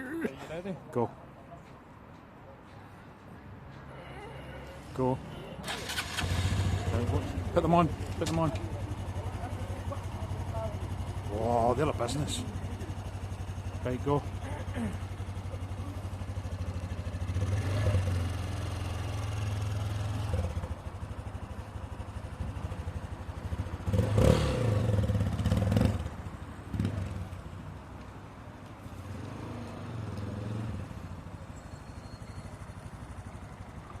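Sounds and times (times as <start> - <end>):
motorcycle engine revving: 5.7 - 27.5.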